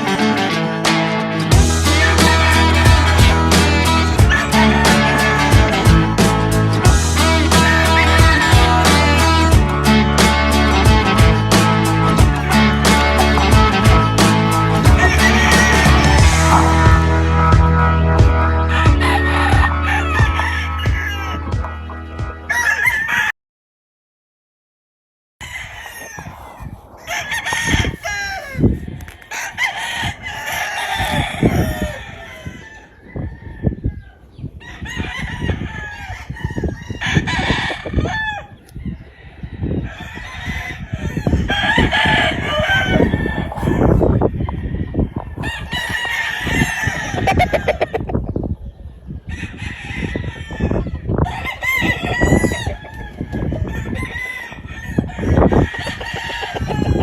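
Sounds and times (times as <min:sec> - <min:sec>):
low rumbling noise: 0:01.5 - 0:19.0
roosters crowing: 0:01.5 - 0:23.4, 0:25.4 - 0:48.4, 0:49.1 - 0:57.0.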